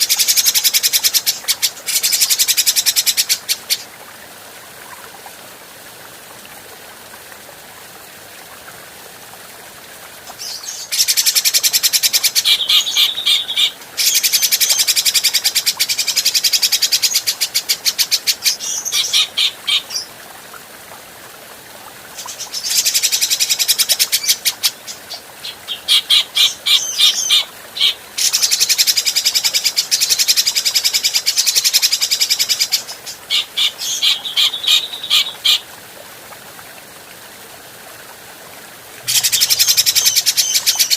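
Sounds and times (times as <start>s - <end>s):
bird chattering song: 10.4s - 20.1s, 22.2s - 35.6s, 39.1s - 40.9s.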